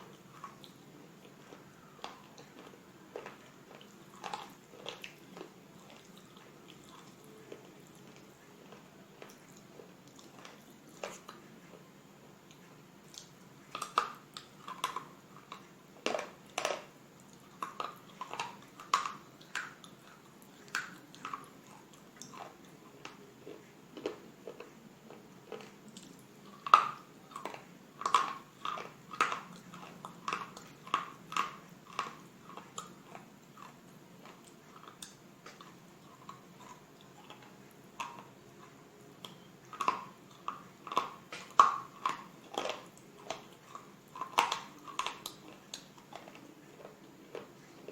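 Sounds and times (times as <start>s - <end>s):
crunching and chewing: 0.0s - 47.9s.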